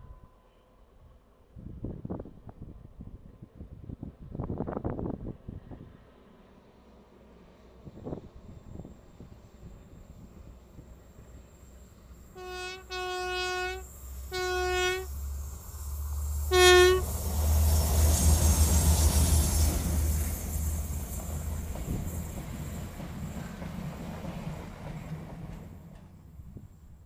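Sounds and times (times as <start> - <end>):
locomotive engine rumble: 9.1 - 27.0
train horn blasts: 12.3 - 15.4, 16.4 - 17.7.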